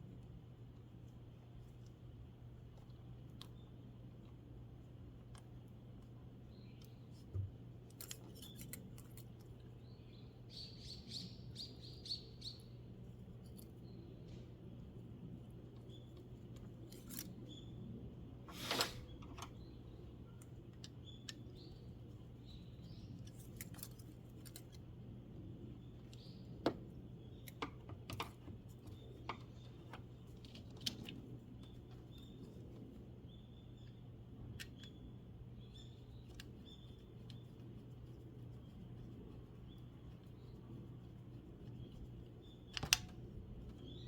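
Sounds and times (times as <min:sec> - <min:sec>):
steady low hum: 0:00.0 - 0:44.0
faint bird chirps: 0:09.6 - 0:16.4, 0:31.6 - 0:44.0.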